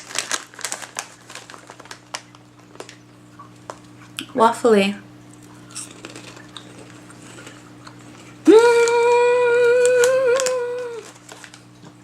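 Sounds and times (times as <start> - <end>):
low electrical hum: 0.0 - 12.0
woman humming mmm: 8.4 - 11.1.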